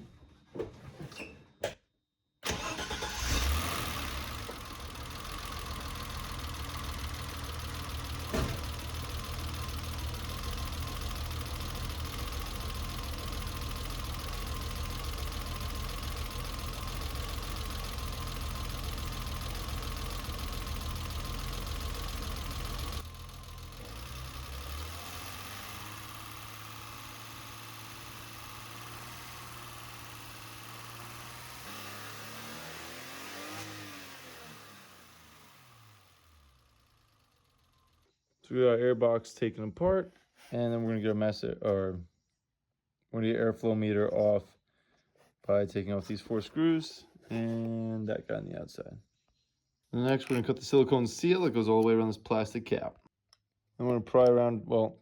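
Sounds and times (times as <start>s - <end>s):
car engine idling roughly: 2.5s - 37.9s.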